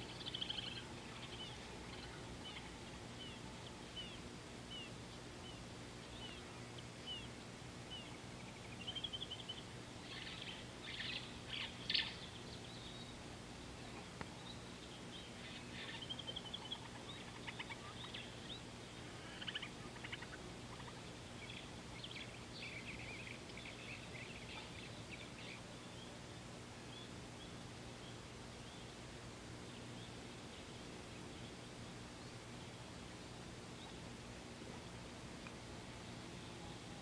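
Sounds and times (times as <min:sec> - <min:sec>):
birds chirping and trilling: 0:00.0 - 0:29.0
faint low hum: 0:00.0 - 0:37.0.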